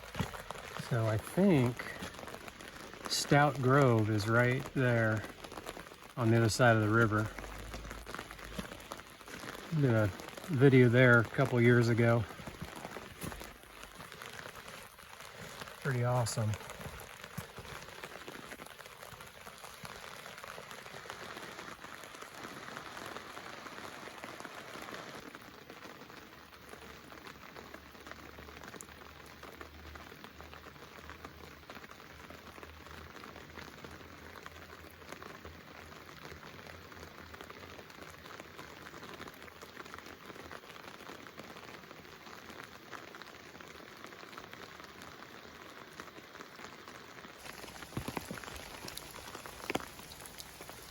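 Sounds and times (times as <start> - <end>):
rushing water: 0.0 - 25.5, 41.6 - 50.9.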